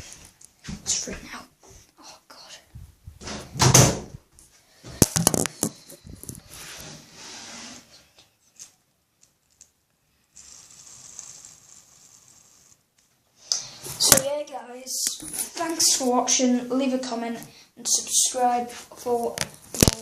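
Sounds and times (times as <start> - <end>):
faint hiss: 10.1 - 14.1.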